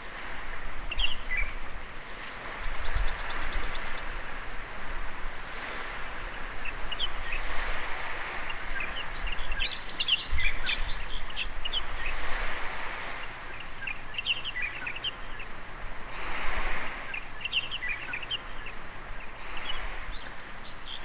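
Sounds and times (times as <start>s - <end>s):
small waves washing on beach: 0.0s - 21.0s
small birds chirping: 0.9s - 1.6s, 2.4s - 4.4s, 6.2s - 7.6s, 8.4s - 12.4s, 13.1s - 15.6s, 17.0s - 21.0s.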